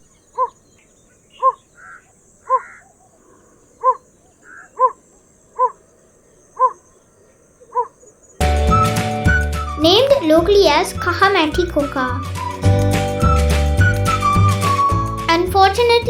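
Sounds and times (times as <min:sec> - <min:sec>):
bird hoarse calls: 0:00.0 - 0:09.7.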